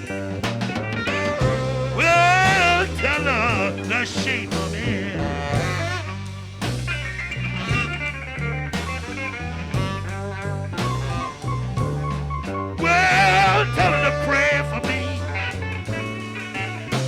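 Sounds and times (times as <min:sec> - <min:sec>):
blues guitar with bent notes: 0:00.0 - 0:17.0
drums: 0:00.0 - 0:17.0
walking bass line: 0:00.0 - 0:17.0.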